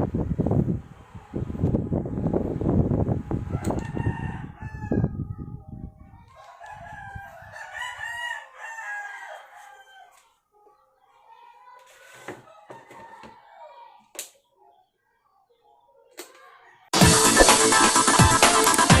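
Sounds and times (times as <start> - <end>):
rooster crowing: 3.5 - 5.2, 6.4 - 10.2, 12.5 - 13.8.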